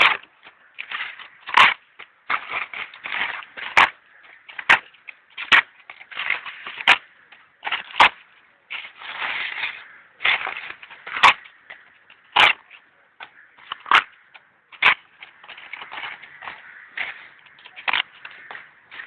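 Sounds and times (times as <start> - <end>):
twigs and leaves crunching: 0.0 - 19.0
twigs snapping: 0.0 - 19.0.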